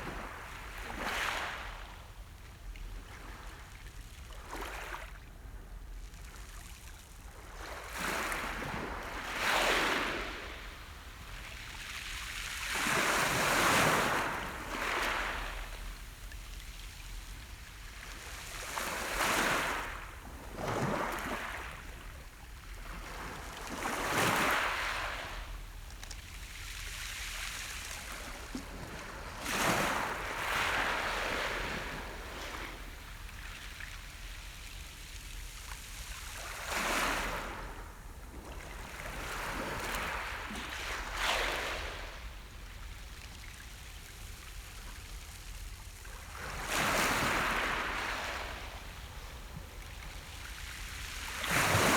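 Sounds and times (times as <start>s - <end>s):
sea waves breaking on shore: 27.0s - 34.0s, 46.0s - 51.9s.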